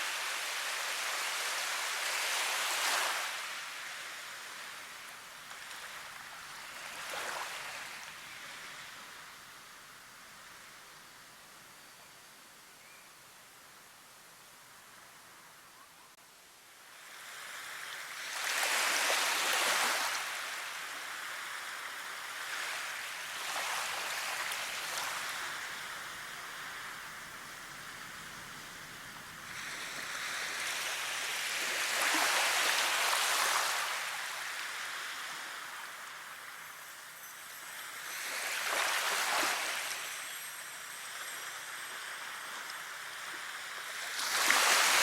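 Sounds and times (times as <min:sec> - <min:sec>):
rushing water: 0:17.1 - 0:36.7, 0:37.5 - 0:45.0.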